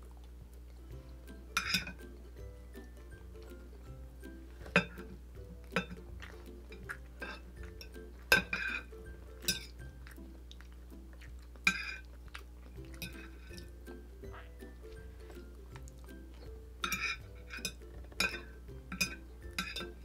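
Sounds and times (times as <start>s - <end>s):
soft background music: 0.0s - 20.0s
cutlery clinking and scraping on plate: 1.5s - 2.0s, 4.5s - 9.8s, 11.6s - 12.1s, 12.8s - 13.7s, 16.3s - 20.0s.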